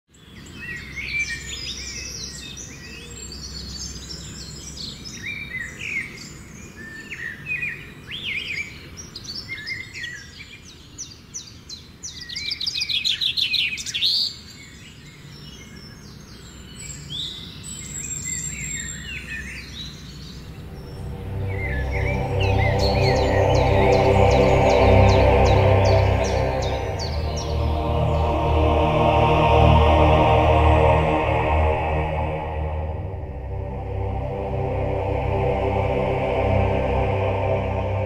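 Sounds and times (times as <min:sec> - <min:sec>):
birds chirping and calling: 0:16.9 - 0:28.6
low background rumble: 0:20.4 - 0:38.0.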